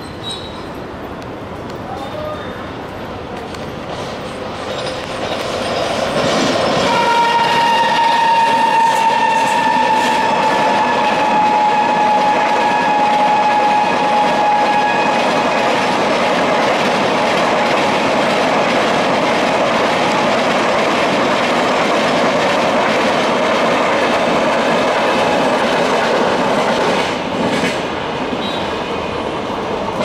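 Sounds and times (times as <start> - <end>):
train coaches passing at speed: 0.0 - 30.0
locomotive horn blast: 6.9 - 15.2.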